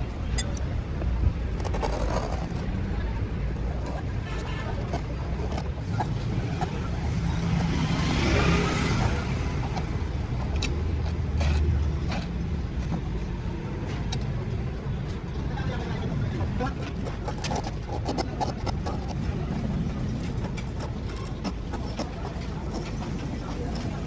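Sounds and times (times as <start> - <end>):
low engine rumble: 0.0 - 24.0
vehicle passing: 2.6 - 14.0, 18.2 - 24.0.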